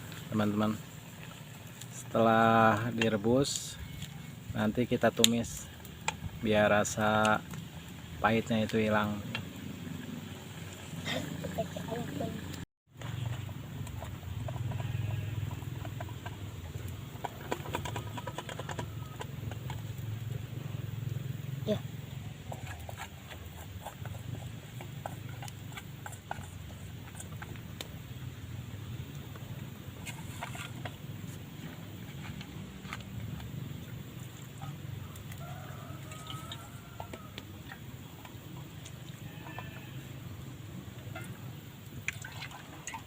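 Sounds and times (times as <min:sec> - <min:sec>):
pot boiling with low rumble: 0:00.0 - 0:43.0.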